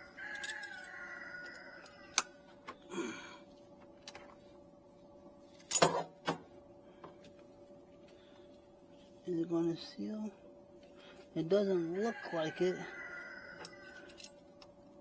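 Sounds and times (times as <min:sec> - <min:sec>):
faint steady hum: 0:00.0 - 0:15.0
tools clicking and knocking: 0:00.3 - 0:00.9.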